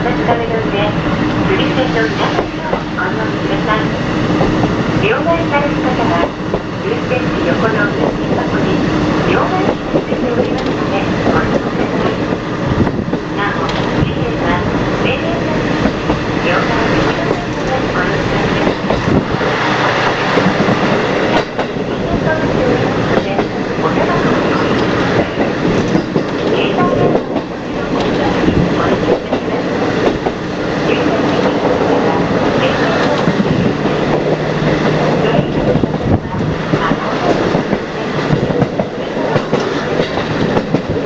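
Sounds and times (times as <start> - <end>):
train running noise: 0.0 - 41.0
wheels clacking over rail joints: 15.6 - 41.0.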